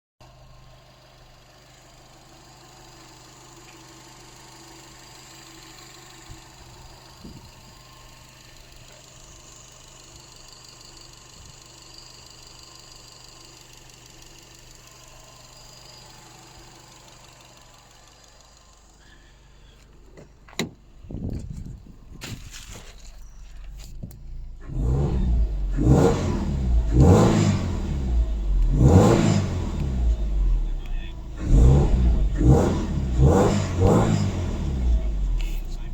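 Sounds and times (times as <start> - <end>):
car engine idling: 0.2 - 35.9
car engine revving: 23.4 - 35.9.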